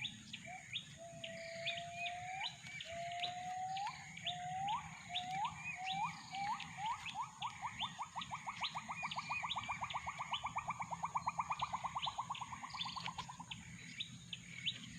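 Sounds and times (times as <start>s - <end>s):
bird chirps: 0.0s - 14.9s
insect whine: 0.0s - 14.9s
gibbon whooping call: 1.7s - 13.4s.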